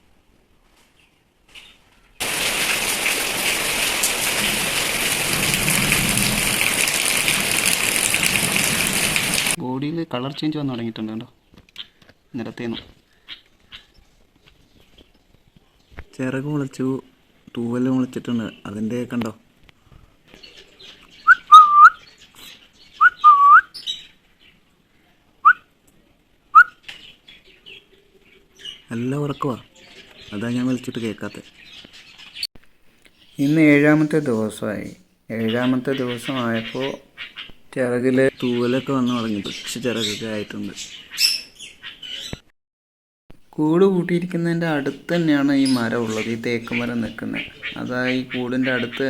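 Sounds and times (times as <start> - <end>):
heavy rain falling: 2.2 - 9.6
person whistling: 21.3 - 22.0, 23.0 - 23.7.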